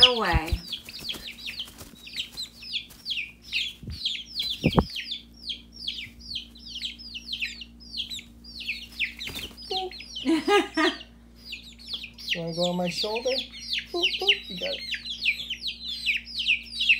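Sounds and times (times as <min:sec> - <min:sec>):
baby chickens peeping: 0:00.0 - 0:16.9
soft low thumps: 0:03.7 - 0:05.0.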